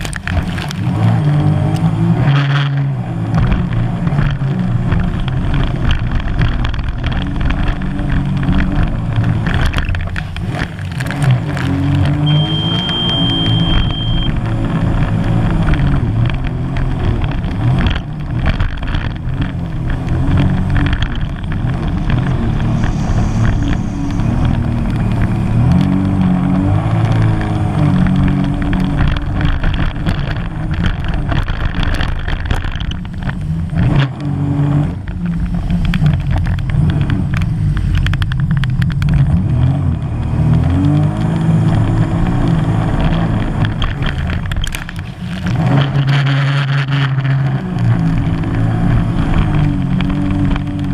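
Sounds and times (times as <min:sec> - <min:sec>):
jet ski engine running hard: 0:00.0 - 0:40.6.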